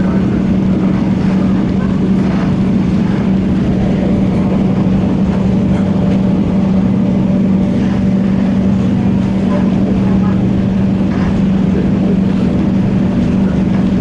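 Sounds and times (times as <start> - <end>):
constant low hum: 0.0 - 14.0
train cabin rumble: 0.0 - 14.0.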